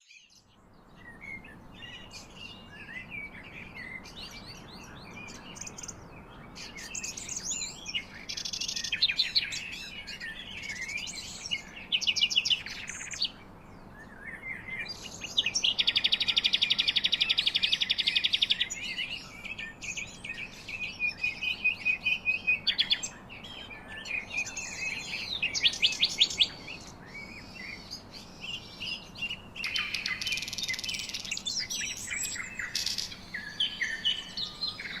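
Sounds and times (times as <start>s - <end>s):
songbirds chirping: 0.0s - 35.0s
rapid bird trill: 24.2s - 35.0s.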